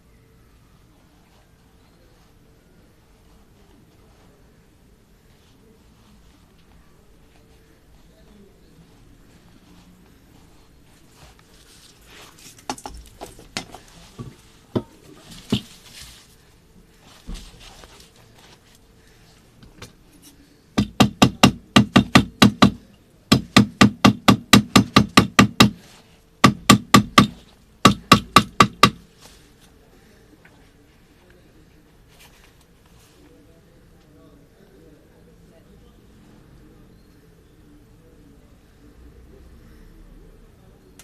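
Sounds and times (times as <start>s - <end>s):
hammer tapping on shoe: 20.8s - 25.8s, 26.4s - 29.0s.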